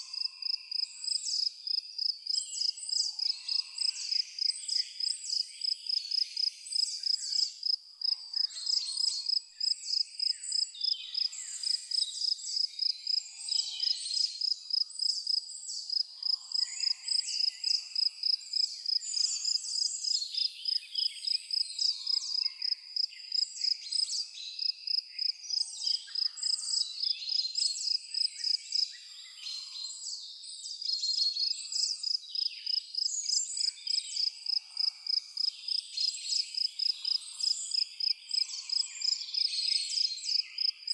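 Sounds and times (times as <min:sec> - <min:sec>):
crickets chirping: 0:00.1 - 0:13.2, 0:13.8 - 0:24.0, 0:31.8 - 0:40.9
birds chirping and calling: 0:25.2 - 0:30.1.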